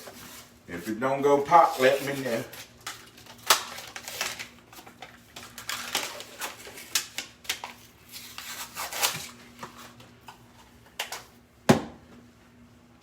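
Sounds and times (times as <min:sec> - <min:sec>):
paper label crinkling and tearing: 0:01.5 - 0:10.0.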